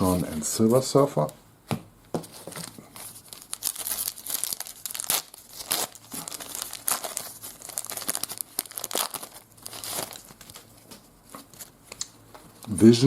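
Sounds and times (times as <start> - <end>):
card pack wrapper tearing and crinkling: 2.6 - 12.0.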